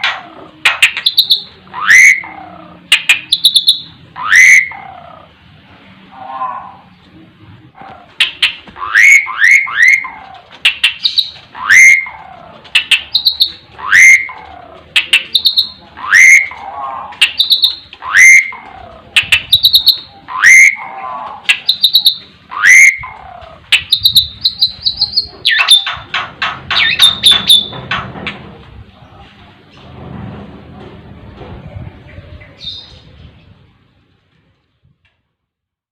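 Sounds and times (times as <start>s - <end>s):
starling calling: 0.0s - 5.4s, 7.8s - 28.0s
high bird chirps: 0.7s - 5.2s, 8.2s - 27.8s.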